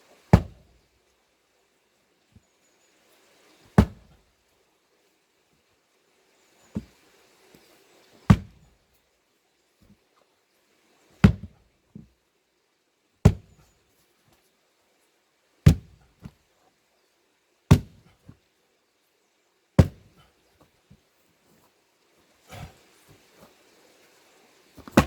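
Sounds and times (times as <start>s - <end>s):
splitting tool striking log: 0.3s - 0.8s, 3.8s - 4.2s, 8.3s - 8.7s, 11.2s - 11.6s, 13.3s - 13.6s, 15.7s - 16.1s, 17.7s - 18.1s, 19.8s - 20.2s, 24.8s - 25.0s.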